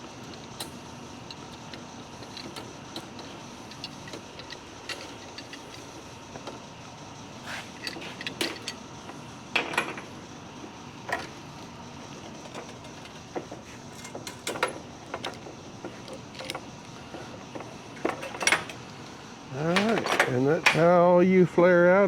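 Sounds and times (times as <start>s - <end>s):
metal tool clicks and clinks: 1.3s - 5.9s.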